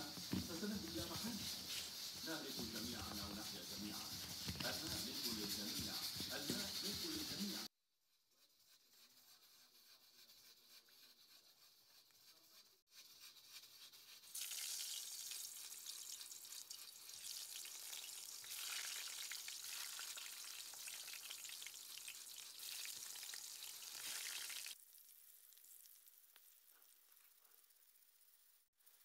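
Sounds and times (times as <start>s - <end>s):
eggplant frying in hot oil: 14.3s - 28.7s.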